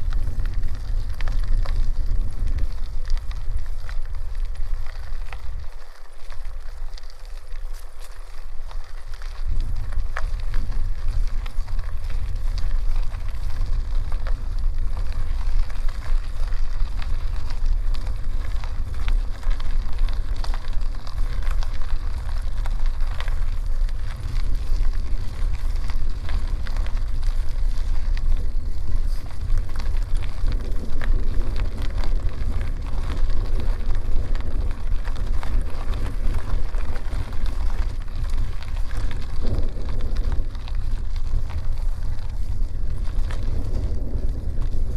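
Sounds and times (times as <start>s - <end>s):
bicycle tyres rolling on dirt: 0.0s - 44.9s
grit clicking under tyres: 0.0s - 44.9s
wind buffeting microphone: 0.0s - 44.9s.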